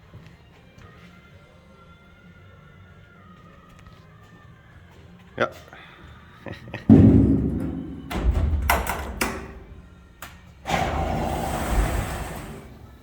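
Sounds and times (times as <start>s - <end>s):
heavy thud: 6.9s - 8.8s
sharp knocks and bangs: 6.9s - 9.8s.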